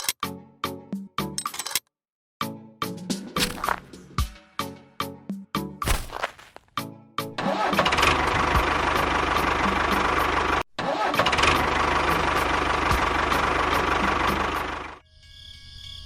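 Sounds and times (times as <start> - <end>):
small engine starting and running: 7.4 - 15.0.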